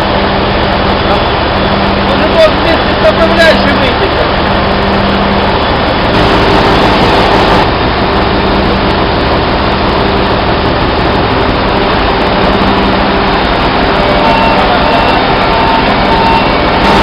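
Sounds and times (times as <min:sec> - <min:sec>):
machinery droning: 0:00.0 - 0:17.0
low hum: 0:04.3 - 0:17.0.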